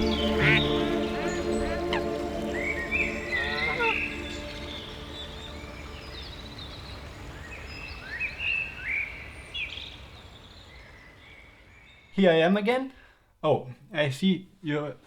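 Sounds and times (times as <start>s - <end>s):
low steady hum: 0.0s - 7.4s
bird chirps: 0.0s - 12.2s.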